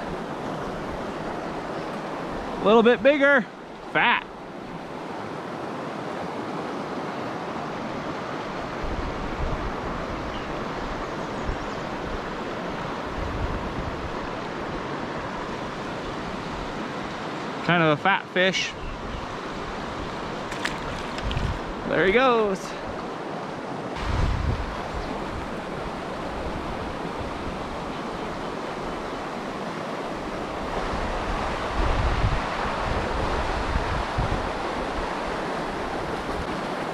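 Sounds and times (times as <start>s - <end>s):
fast stream rushing: 0.0s - 9.9s, 19.5s - 36.9s
wind buffeting microphone: 20.5s - 22.0s, 24.0s - 34.5s.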